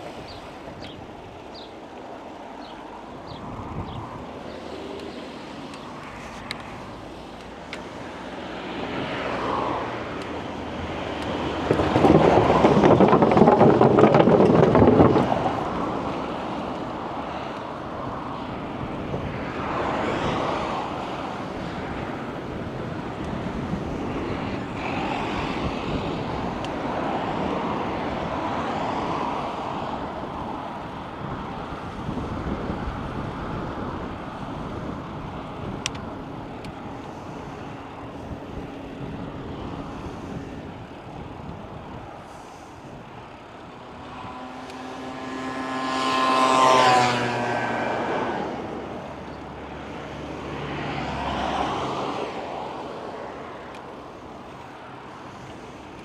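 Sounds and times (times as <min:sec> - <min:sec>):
wind and road noise: 0:00.0 - 0:56.0
car passing by: 0:02.6 - 0:35.6, 0:41.9 - 0:56.0
faint vehicle passing: 0:02.6 - 0:56.0.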